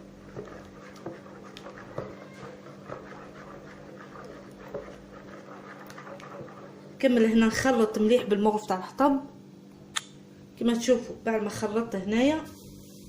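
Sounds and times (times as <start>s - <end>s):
spoon scraping dough in bowl: 0.0s - 8.0s.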